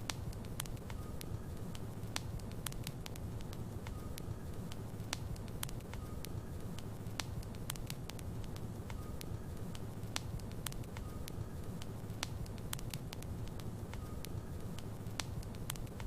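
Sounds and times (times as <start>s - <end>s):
fire crackling and popping: 0.0s - 16.0s.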